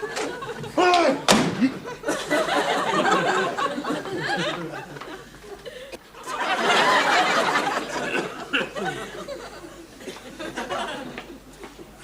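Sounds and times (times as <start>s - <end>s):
studio audience laughing: 0.0s - 0.8s, 1.6s - 11.5s
sharp knock: 1.3s - 1.6s.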